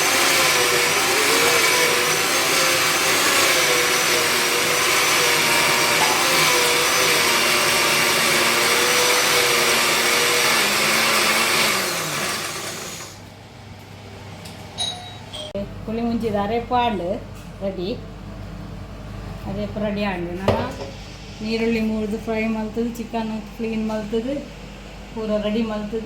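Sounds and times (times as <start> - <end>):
mixer grinder motor whine: 0.0 - 13.3.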